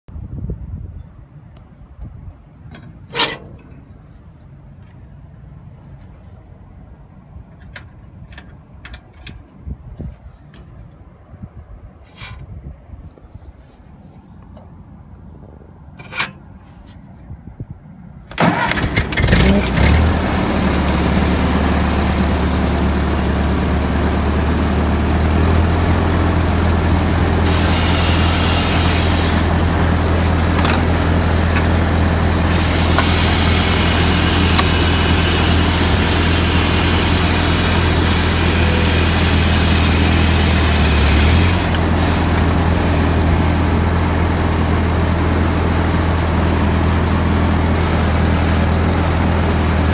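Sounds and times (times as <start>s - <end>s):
tractor engine starting and idling: 18.3s - 49.9s
starter click: 30.6s - 31.8s, 32.4s - 35.2s.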